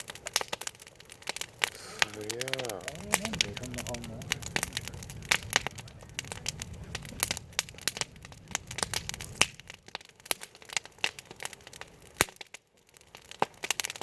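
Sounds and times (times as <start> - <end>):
wood fire crackling: 0.0 - 14.0
low rumble: 1.0 - 10.4.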